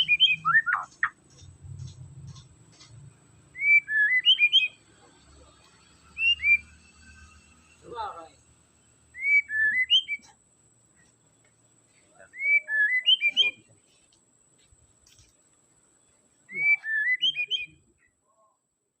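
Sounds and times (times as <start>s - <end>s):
bird singing whistled notes: 0.0s - 1.2s, 3.5s - 4.9s, 6.1s - 7.6s, 9.0s - 10.4s, 12.3s - 13.7s, 16.5s - 18.1s.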